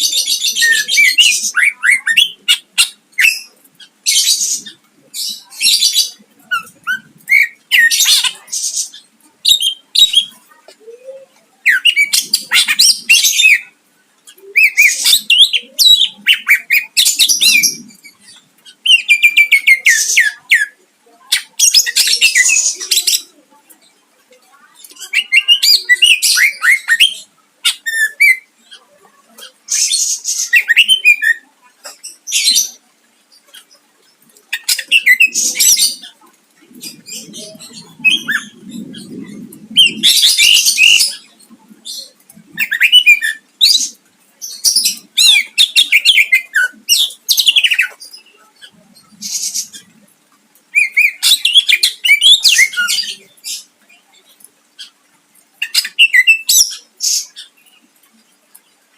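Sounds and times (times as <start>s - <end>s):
bird singing whistles and trills: 30.1s - 31.5s, 37.0s - 41.2s, 42.6s - 43.9s, 55.6s - 56.8s.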